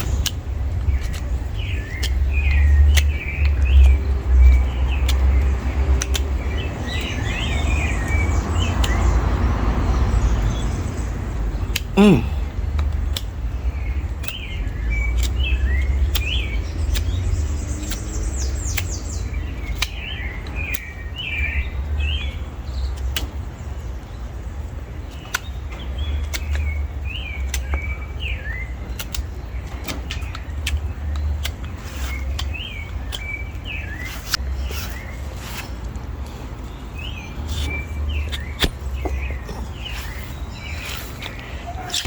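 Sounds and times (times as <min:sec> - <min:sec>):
sharp clicks: 0:00.0 - 0:07.2, 0:28.9 - 0:35.0
small birds chirping: 0:00.0 - 0:42.0.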